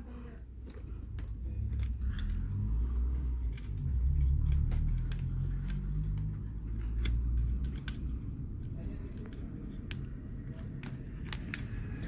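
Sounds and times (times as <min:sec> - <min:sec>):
low rumble: 0:00.6 - 0:12.0
light clicks and taps: 0:03.4 - 0:12.0.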